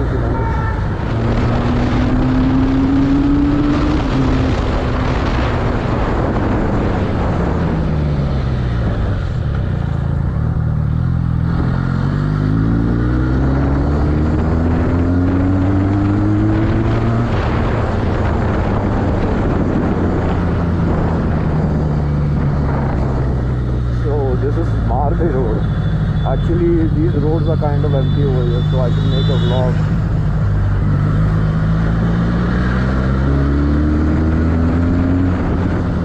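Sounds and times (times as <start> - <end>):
motorcycle engine revving: 0.0 - 36.0
steady rushing noise: 15.5 - 36.0.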